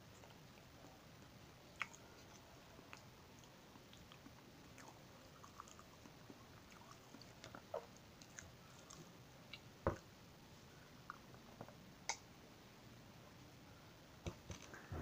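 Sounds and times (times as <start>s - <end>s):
person chewing sticky food: 0.0s - 10.1s.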